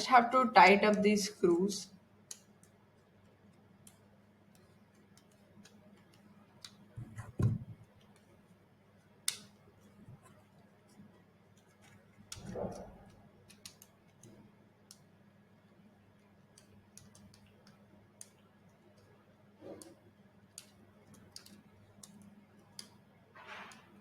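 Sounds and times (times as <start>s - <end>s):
light clicks and ticks: 2.2s - 7.0s, 16.2s - 19.2s, 19.8s - 23.0s.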